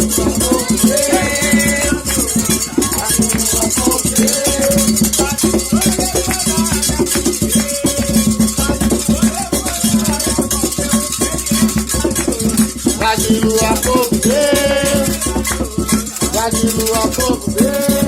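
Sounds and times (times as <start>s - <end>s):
hand drums: 0.0s - 18.0s
person singing: 0.0s - 18.0s
shaken rattle: 0.0s - 18.0s.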